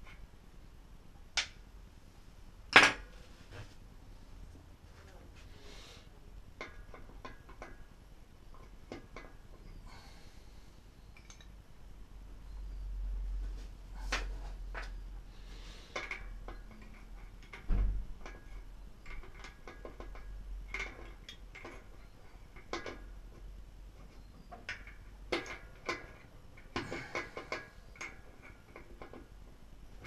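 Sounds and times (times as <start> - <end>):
metal parts clicking and clinking: 11.2 - 11.6.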